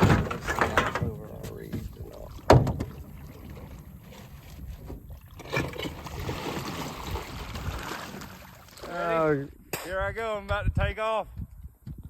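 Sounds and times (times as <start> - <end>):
boat engine rumble: 0.0 - 9.0
wind on microphone: 6.1 - 8.4, 9.5 - 12.0.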